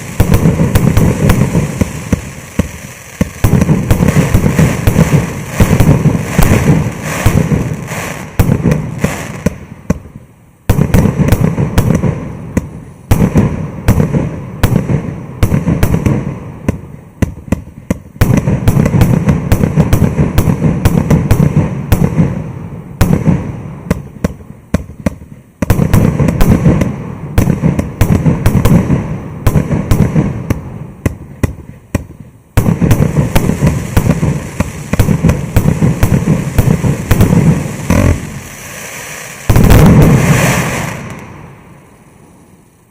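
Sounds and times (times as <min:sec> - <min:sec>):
fireworks launch thumps: 0:00.0 - 0:10.1, 0:23.0 - 0:41.3
fireworks shells bursting: 0:00.0 - 0:10.1, 0:23.9 - 0:42.6.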